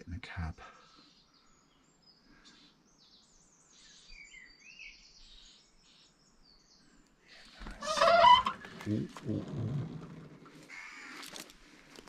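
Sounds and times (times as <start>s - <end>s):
small birds chirping: 0.0s - 12.0s
bird warbling: 7.6s - 11.4s.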